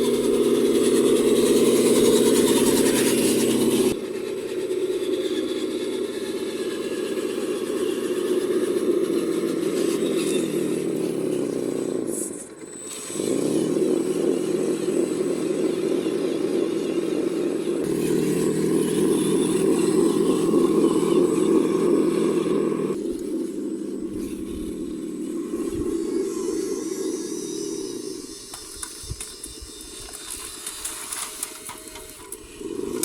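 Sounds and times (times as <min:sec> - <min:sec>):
electric motor and gear whine: 0:00.0 - 0:33.0.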